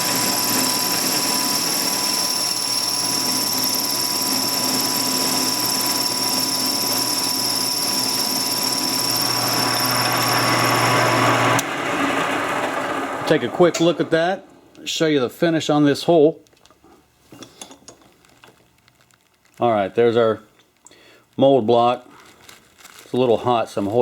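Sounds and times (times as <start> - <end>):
machine tool cutting metal whine: 0.0 - 11.7.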